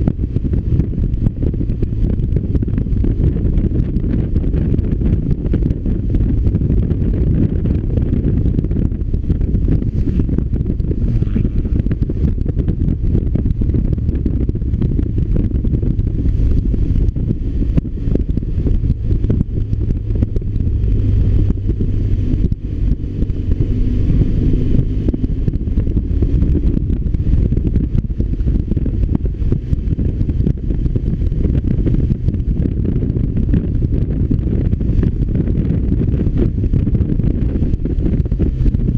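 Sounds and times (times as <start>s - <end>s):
motorcycle engine running: 0.0s - 38.9s
wind rumble on microphone: 0.0s - 38.9s.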